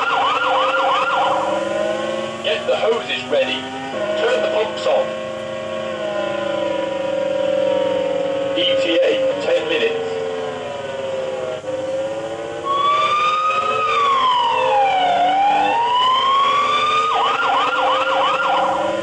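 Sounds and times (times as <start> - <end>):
electronic siren wailing and yelping: 0.0 - 2.3, 3.9 - 19.0.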